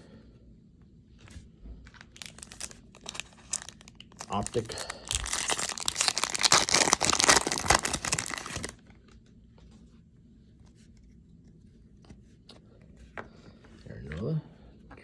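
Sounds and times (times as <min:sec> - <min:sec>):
cards being handled: 0:01.2 - 0:08.9
wrapper tearing and crinkling: 0:01.9 - 0:08.8.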